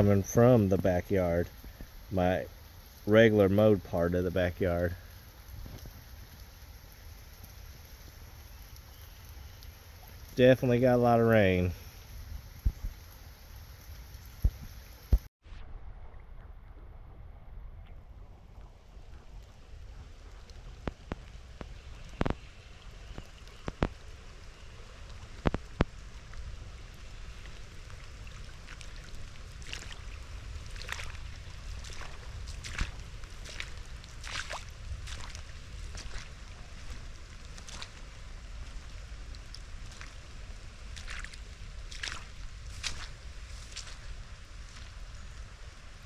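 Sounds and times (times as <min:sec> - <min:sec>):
raindrops ticking on microphone: 0:00.0 - 0:15.3, 0:17.8 - 0:46.0
soft rain patter: 0:00.0 - 0:15.3, 0:15.9 - 0:46.0
low rush of rain: 0:00.0 - 0:46.0
running floodwater: 0:00.0 - 0:46.0
low steady rumble: 0:11.2 - 0:46.0.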